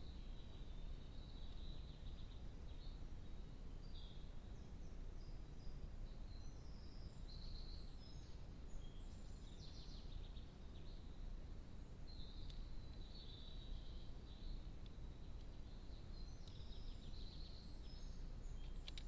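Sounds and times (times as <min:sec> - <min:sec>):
songbird notes: 0:00.0 - 0:19.0.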